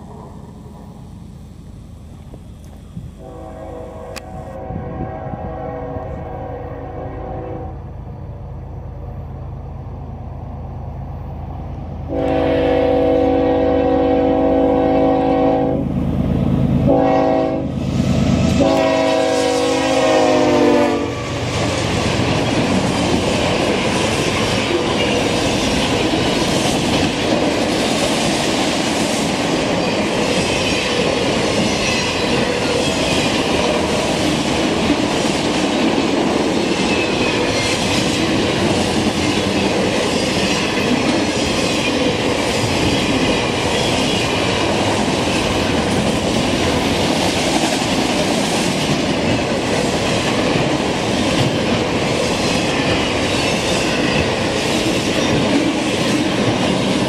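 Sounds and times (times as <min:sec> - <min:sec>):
diesel locomotive engine rumbling: 0:00.0 - 0:57.0
train horn blasts: 0:03.2 - 0:07.9, 0:12.1 - 0:16.0, 0:16.8 - 0:21.6.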